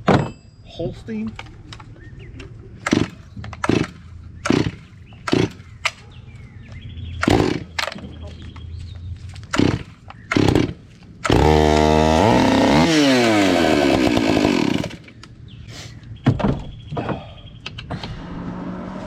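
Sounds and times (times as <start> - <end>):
chainsaw pull-start: 2.8 - 5.6, 7.2 - 7.8, 9.5 - 15.1
chainsaw running and revving: 2.8 - 5.6, 7.2 - 7.8, 9.5 - 15.2.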